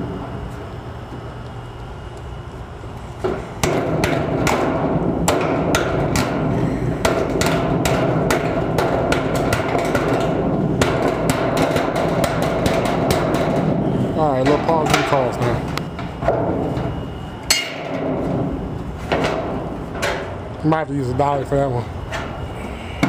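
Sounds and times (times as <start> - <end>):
hammer blows on sheet metal: 3.2 - 15.5.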